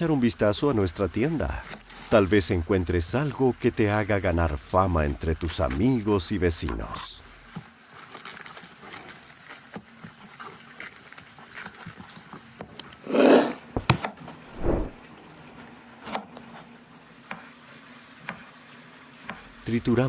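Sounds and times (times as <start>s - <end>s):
knife tapping and scraping on board: 12.8s - 14.0s.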